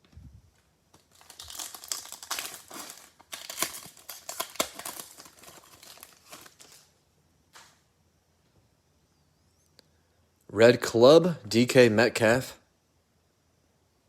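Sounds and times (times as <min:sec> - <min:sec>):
plastic wrapper crinkling and tearing: 0:00.9 - 0:06.9.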